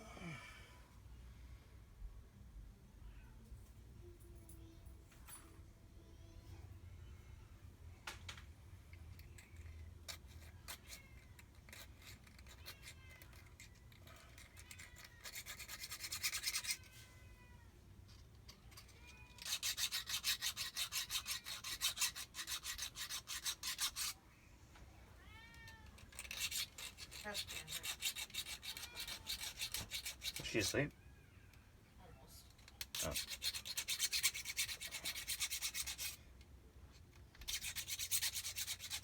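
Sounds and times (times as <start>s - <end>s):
hand file rasping on metal: 9.4s - 16.8s, 18.8s - 24.2s, 26.0s - 30.8s, 32.8s - 36.2s, 37.4s - 39.0s.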